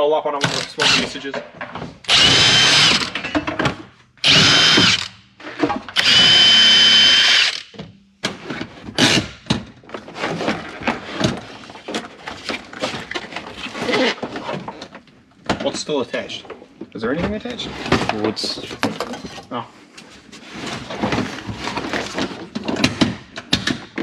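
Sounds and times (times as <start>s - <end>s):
power drill whining: 0.5s - 1.2s, 2.1s - 3.2s, 4.2s - 5.1s, 6.0s - 7.7s.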